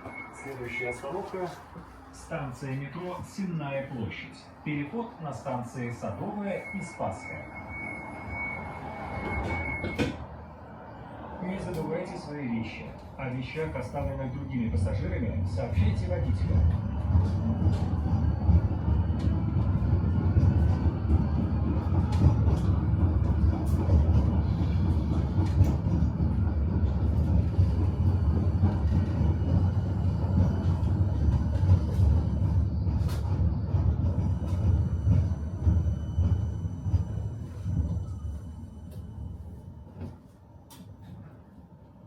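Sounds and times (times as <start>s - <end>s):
tram wheels rumbling: 0.0s - 42.0s
wheels clicking on track: 14.9s - 38.2s.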